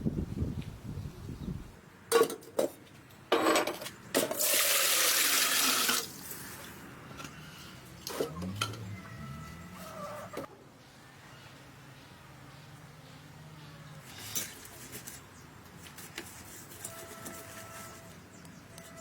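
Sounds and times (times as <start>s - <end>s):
water pouring: 4.4s - 6.4s.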